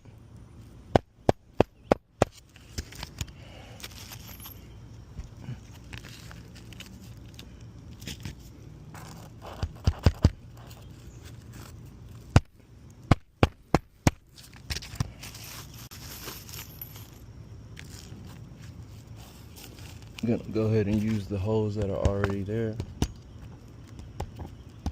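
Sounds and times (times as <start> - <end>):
scraping and crackling shingles: 5.2 - 12.6.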